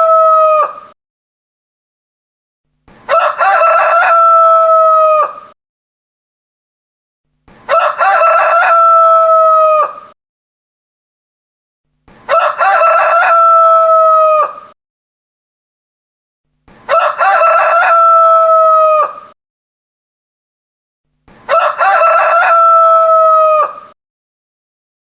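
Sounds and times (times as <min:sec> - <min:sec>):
rooster crowing: 0:00.0 - 0:00.8, 0:03.1 - 0:05.6, 0:07.7 - 0:10.2, 0:12.3 - 0:14.8, 0:16.9 - 0:19.4, 0:21.5 - 0:24.0.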